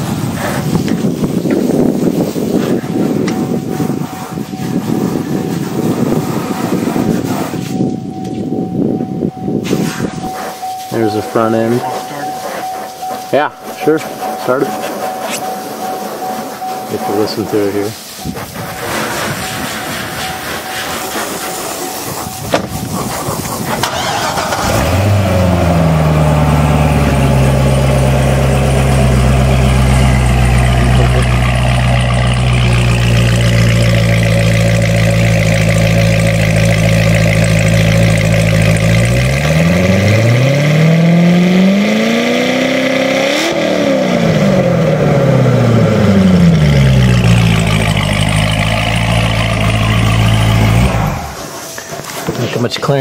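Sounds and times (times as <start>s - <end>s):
car engine idling and revving: 0.0s - 53.0s.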